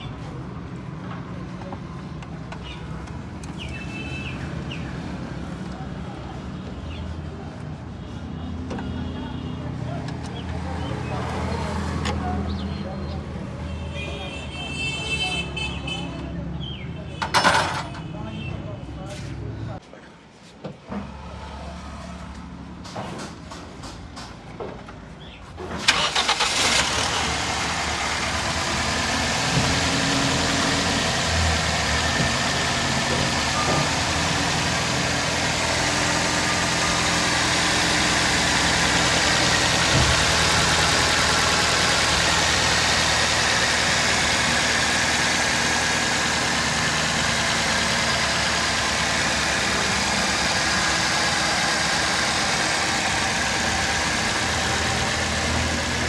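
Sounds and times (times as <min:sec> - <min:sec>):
car engine starting and idling: 0:25.7 - 0:56.0.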